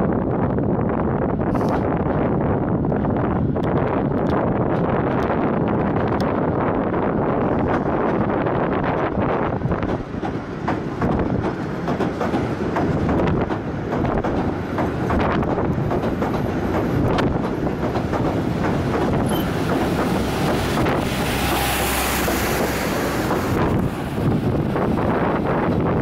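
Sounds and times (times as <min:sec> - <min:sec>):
train carriages rumbling: 0:00.2 - 0:26.0
wheels clicking over rail joints: 0:07.5 - 0:26.0.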